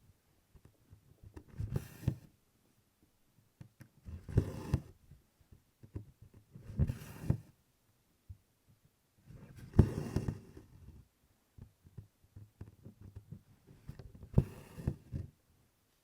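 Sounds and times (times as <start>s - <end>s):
needle pushed through canvas: 9.5s - 10.5s.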